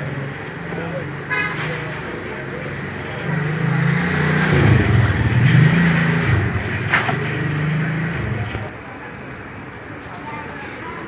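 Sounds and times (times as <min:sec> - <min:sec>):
vehicle engine revving: 0:02.4 - 0:08.7.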